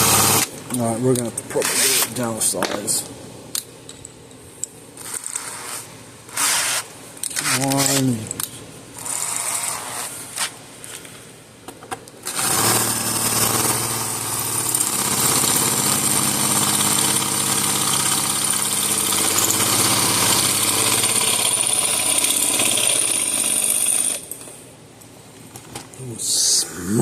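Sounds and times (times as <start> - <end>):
electric drill boring into screw: 0.0 - 0.5, 12.3 - 24.2.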